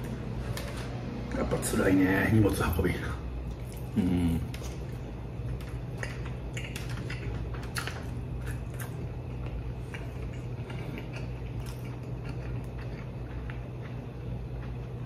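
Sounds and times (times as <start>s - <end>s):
steady low hum: 0.0s - 15.0s
person chewing crunchy food: 3.5s - 15.0s.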